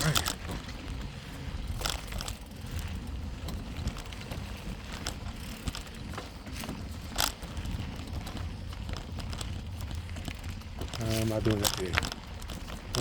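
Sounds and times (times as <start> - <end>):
bicycle tyre crunching on dirt: 0.0 - 13.0
bike clicks and rattles: 0.0 - 13.0.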